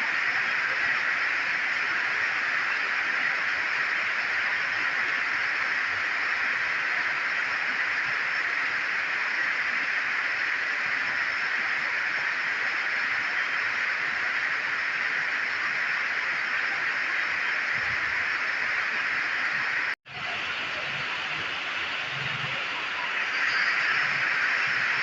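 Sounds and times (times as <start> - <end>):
heavy rain downpour: 0.0 - 25.0.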